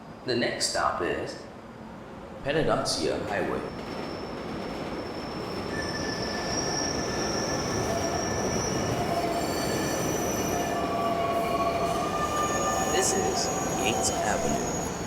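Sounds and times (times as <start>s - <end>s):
subway train rumble: 0.0s - 15.0s
train wheels squealing on rails: 3.3s - 15.0s.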